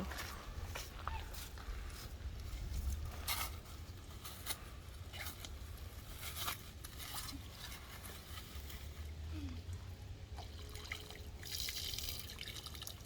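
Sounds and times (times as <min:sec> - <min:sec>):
gravel crunching and scraping: 0:00.0 - 0:10.0.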